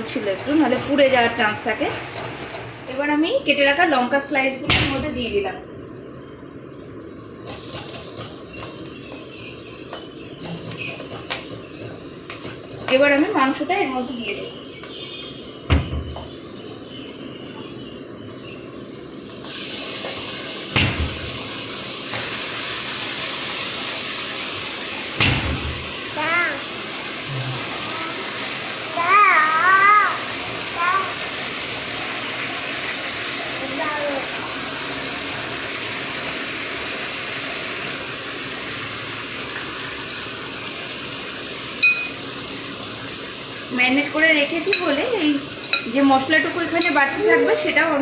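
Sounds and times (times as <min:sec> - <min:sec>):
meat sizzling in hot butter: 0:07.4 - 0:12.7, 0:19.4 - 0:46.8
knocks in the pan: 0:20.7 - 0:21.4, 0:25.2 - 0:25.9.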